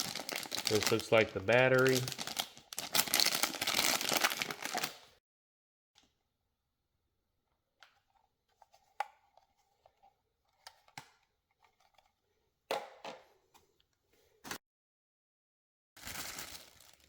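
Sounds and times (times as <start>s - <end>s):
packaging rustling: 0.0s - 5.1s, 16.0s - 17.0s.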